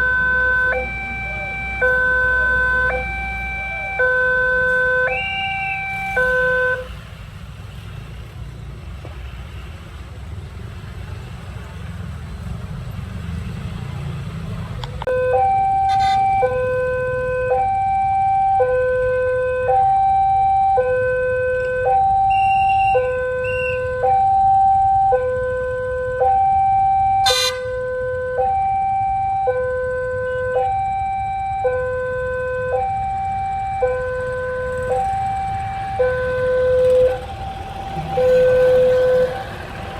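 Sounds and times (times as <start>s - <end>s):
level crossing two-tone alarm: 0.0s - 6.9s, 15.1s - 39.9s
low rumble of engines: 0.0s - 39.9s.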